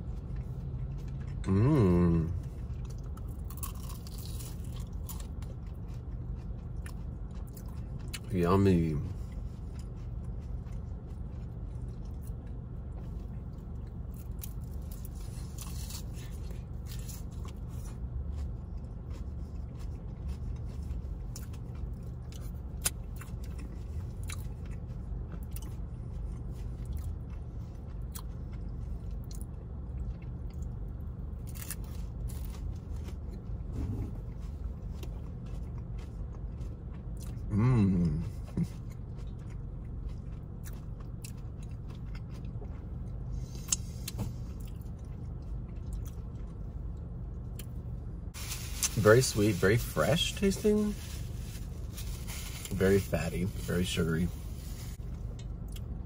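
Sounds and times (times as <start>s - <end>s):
chewing crunchy pastry: 0.0s - 56.0s
steady low hum: 0.0s - 56.0s
person humming: 1.5s - 2.4s, 37.5s - 38.2s.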